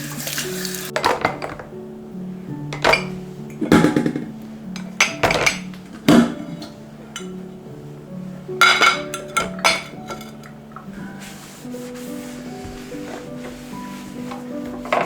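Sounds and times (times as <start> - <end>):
soft instrumental background music: 0.0 - 15.0
dishes clinking and clattering: 0.9 - 1.7, 2.7 - 7.4, 8.6 - 11.0, 14.2 - 15.0.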